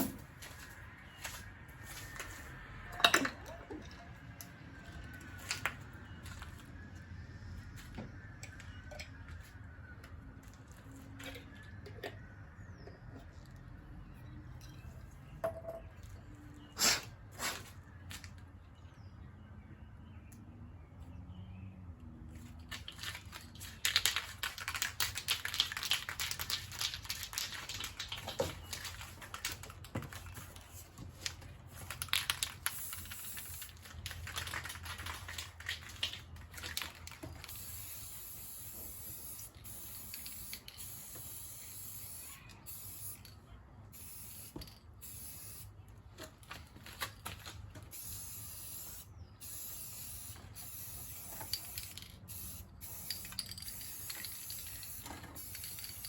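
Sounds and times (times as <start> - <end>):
spray-paint can hissing: 32.7 - 33.7, 37.5 - 43.3, 43.9 - 45.7, 47.9 - 56.0.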